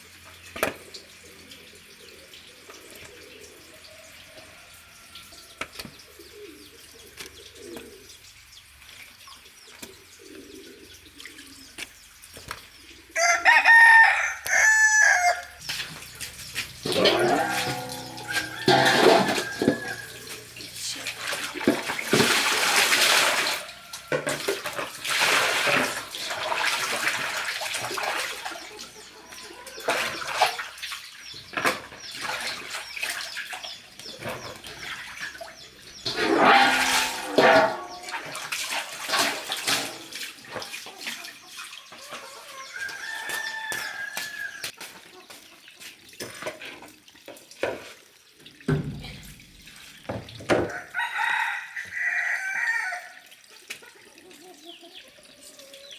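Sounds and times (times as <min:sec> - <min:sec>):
chickens calling: 0:00.1 - 0:46.0, 0:50.5 - 0:55.9
water splashing and sloshing: 0:15.4 - 0:55.9.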